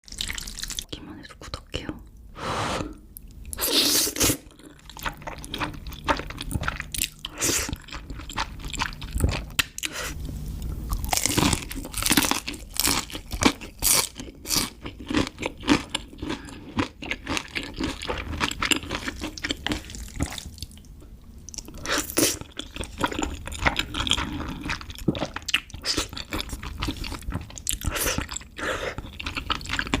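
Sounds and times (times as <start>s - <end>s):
crunchy chewing: 10.9s - 20.8s, 21.5s - 30.0s.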